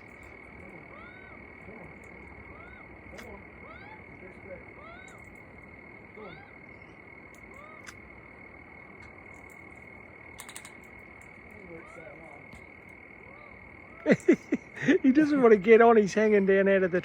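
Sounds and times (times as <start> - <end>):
soft chirping calls: 0.0 - 15.3
quick clicks: 10.4 - 10.8.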